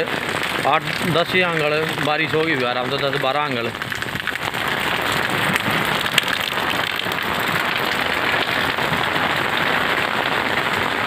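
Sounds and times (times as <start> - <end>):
heavy rain on bricks: 0.0 - 11.0
sharp rain ticks: 0.0 - 11.0.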